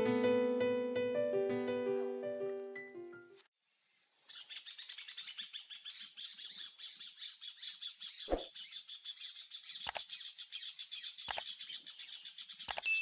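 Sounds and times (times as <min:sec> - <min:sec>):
forest birds chirping: 0:00.3 - 0:13.0
sharp click: 0:09.8 - 0:10.1, 0:12.7 - 0:12.9.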